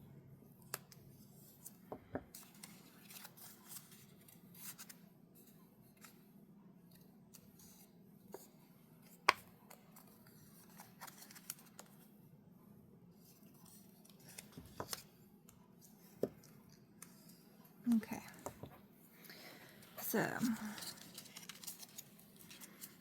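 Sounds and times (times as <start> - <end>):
paper rustling: 1.6 - 5.0, 9.7 - 12.0, 19.6 - 23.0.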